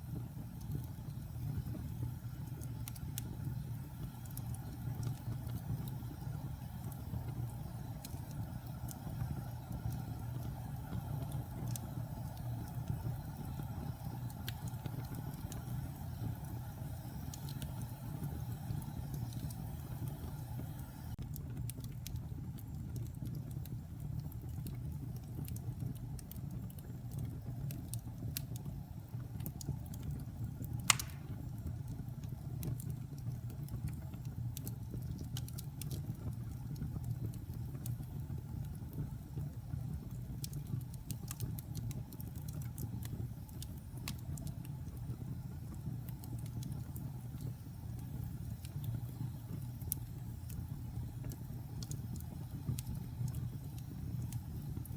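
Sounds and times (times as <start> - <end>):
wood fire crackling: 0.0 - 54.9
fire popping loudly: 29.2 - 54.9.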